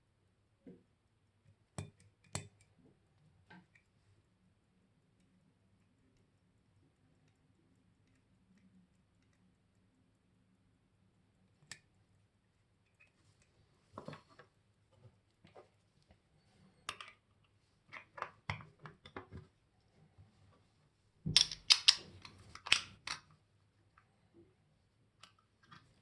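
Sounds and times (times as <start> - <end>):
wristwatch and tools clicking: 21.3 - 23.2.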